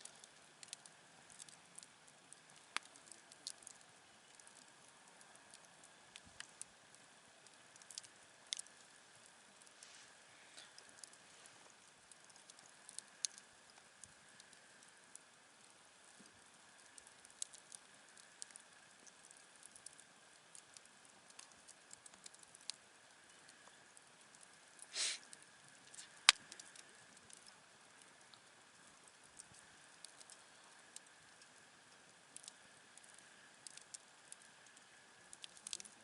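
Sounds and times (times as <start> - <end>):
campfire crackling: 0.0 - 36.0
fire hiss: 24.8 - 26.4.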